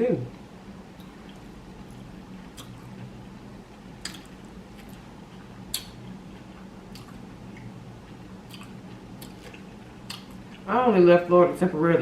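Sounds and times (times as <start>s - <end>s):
steady low hum: 0.0s - 12.0s
wet chewing mouth sounds: 1.0s - 10.7s
mouth clicks and smacks: 2.6s - 2.9s, 4.0s - 5.0s, 5.7s - 6.0s, 6.9s - 7.7s, 8.5s - 10.7s.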